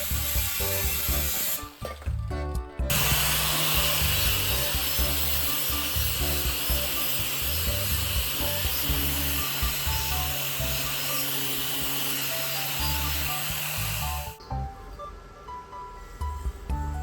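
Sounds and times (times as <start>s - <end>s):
power tool running: 0.0s - 1.8s, 2.9s - 14.4s
background music with bass line: 0.0s - 15.2s, 16.2s - 17.0s.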